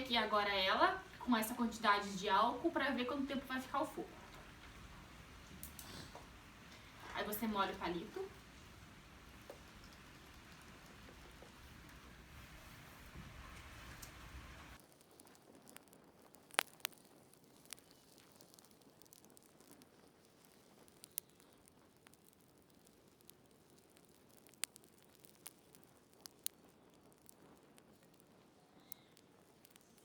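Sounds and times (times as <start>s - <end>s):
alcohol fire rushing: 0.0s - 14.8s
faint crackles and ticks: 0.0s - 30.0s.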